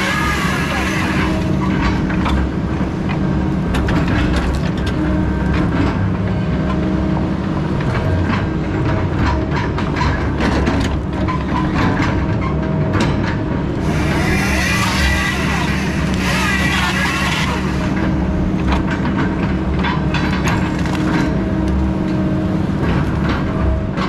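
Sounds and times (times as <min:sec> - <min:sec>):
heavy logging machine running: 0:00.0 - 0:24.0
metallic clanks and rattles: 0:07.8 - 0:13.7, 0:18.6 - 0:21.4.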